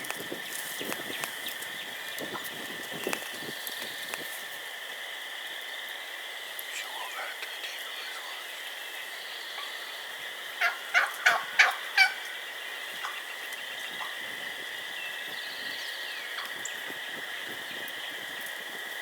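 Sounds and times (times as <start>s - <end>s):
steady high-pitched hum: 0.0s - 18.3s
turkey hen yelping: 10.6s - 12.3s.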